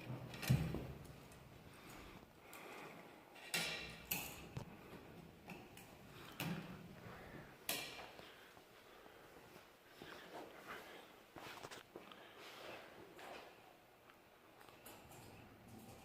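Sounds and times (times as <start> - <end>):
tools clicking and knocking: 3.4 - 4.6.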